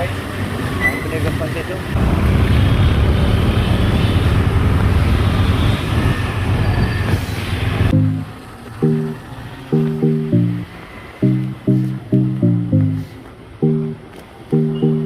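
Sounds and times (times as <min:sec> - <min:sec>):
traffic rumble: 0:00.0 - 0:15.0
musical notes: 0:07.9 - 0:15.0.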